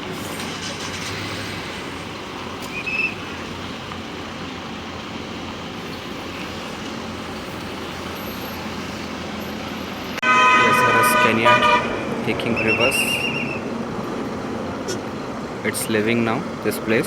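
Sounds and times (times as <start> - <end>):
diesel coach engine running: 0.0 - 17.0
traffic: 0.0 - 17.0.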